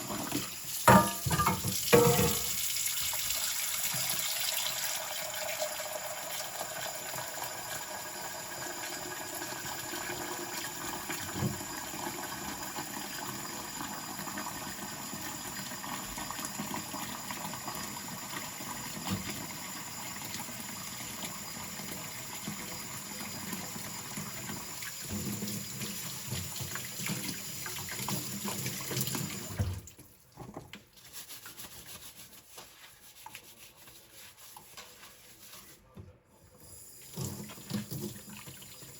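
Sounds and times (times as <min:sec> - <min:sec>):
tap running into a sink: 0:00.0 - 0:04.5, 0:11.0 - 0:11.9, 0:16.4 - 0:20.4, 0:21.2 - 0:30.9, 0:37.0 - 0:38.9
crockery knocking: 0:00.9 - 0:02.5.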